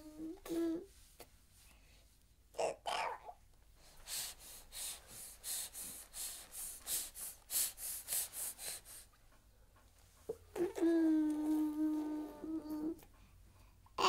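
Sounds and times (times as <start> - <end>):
baby breathing in excited huffs: 3.8 - 9.2.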